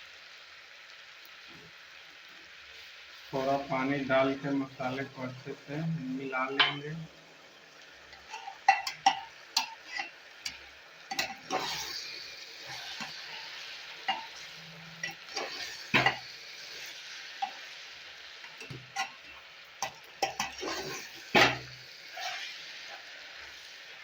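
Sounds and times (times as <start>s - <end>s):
masala sizzling in pot: 0.0s - 24.0s
spoon scraping metal pot: 8.2s - 12.0s, 12.7s - 16.2s, 18.5s - 23.0s.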